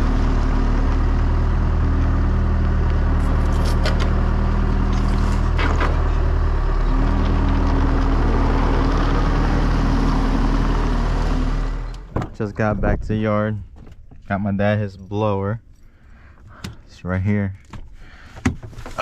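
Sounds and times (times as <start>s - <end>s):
vehicle engine running: 0.0s - 12.7s.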